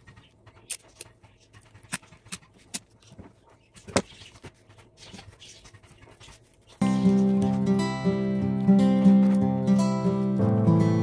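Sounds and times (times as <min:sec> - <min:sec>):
paper rustling: 0:00.8 - 0:10.6.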